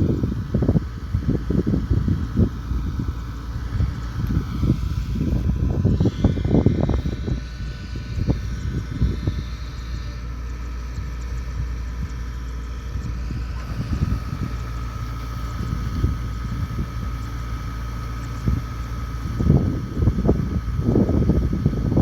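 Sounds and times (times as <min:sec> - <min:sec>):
diesel engine running: 0:00.0 - 0:22.0
thin steady whine: 0:00.0 - 0:22.0.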